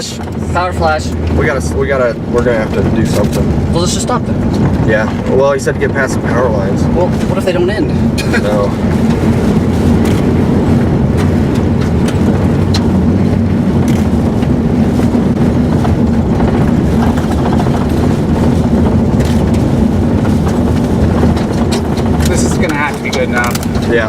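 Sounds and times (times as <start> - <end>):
car driving hum: 0.0 - 24.0
wind noise: 0.0 - 24.0
ticks against car body: 9.0 - 24.0.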